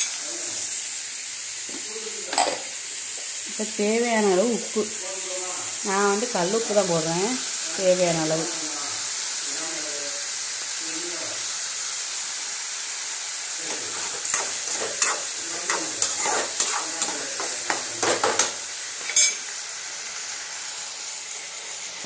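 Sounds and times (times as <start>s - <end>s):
onions sizzling in hot oil: 0.0s - 22.0s
metal spatula scraping pan: 13.6s - 19.4s.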